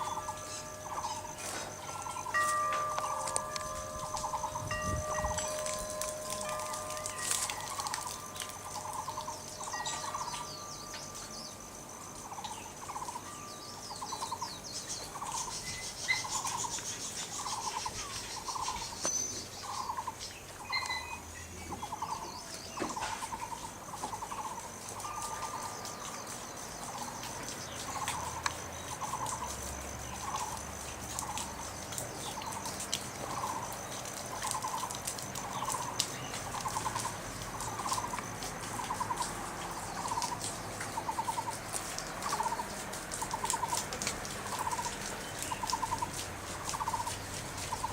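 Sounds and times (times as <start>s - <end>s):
bird calling pulsed note: 0.0s - 11.4s, 20.6s - 21.2s.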